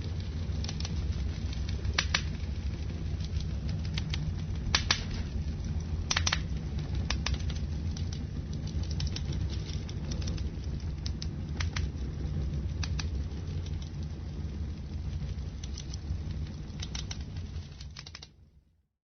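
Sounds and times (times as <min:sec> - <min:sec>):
fire popping and crackling: 0:00.0 - 0:18.6
low rumble of flames: 0:00.0 - 0:18.8.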